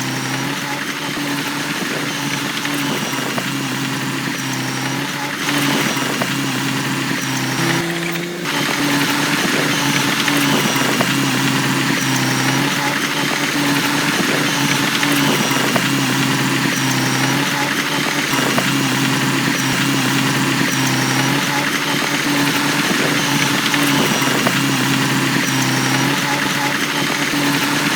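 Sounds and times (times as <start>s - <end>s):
heavy machinery diesel engine: 0.0s - 27.9s.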